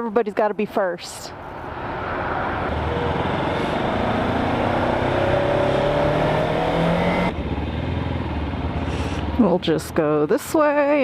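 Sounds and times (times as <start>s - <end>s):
motorcycle engine accelerating: 2.6s - 10.0s.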